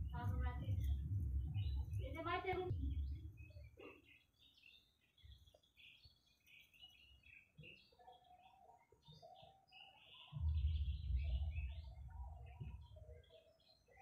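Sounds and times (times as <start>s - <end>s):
low rumble on microphone: 0.0s - 3.7s, 10.4s - 13.2s
small birds chirping: 0.0s - 14.0s.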